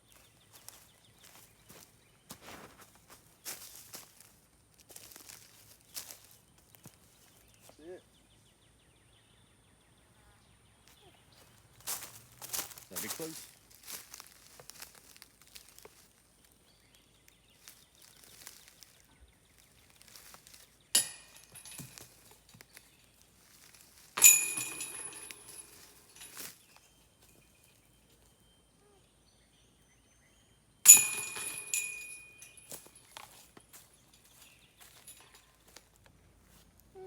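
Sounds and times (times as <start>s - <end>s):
discs striking basket chains: 20.0s - 27.8s, 30.8s - 35.8s.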